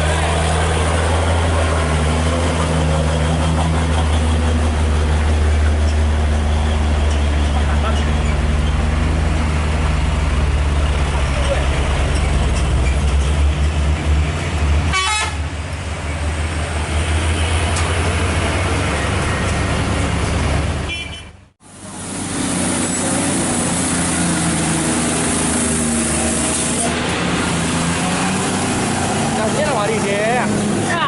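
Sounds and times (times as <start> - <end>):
truck engine running under load: 0.0 - 20.8, 21.6 - 31.0
steady vehicle noise: 0.0 - 31.0
truck horn toot: 14.9 - 15.5, 20.8 - 21.4.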